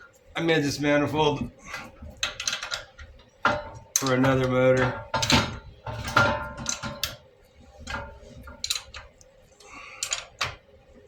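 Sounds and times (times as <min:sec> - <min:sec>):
hand tools clicking on metal: 0:01.7 - 0:07.2, 0:10.0 - 0:10.6.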